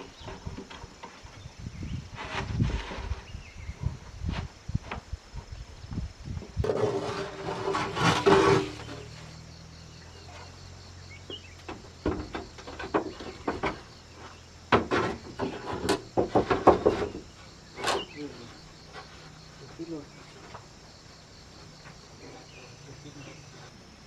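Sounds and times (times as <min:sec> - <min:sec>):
wooden knocks and clatters: 0:00.0 - 0:01.5, 0:06.4 - 0:09.2, 0:11.2 - 0:20.8
wood scraping rustle: 0:00.0 - 0:24.0.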